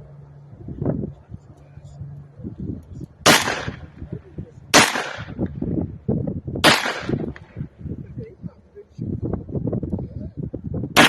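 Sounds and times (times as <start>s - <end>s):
rifle shots with echo: 3.2s - 4.0s, 4.7s - 5.6s, 6.6s - 7.7s.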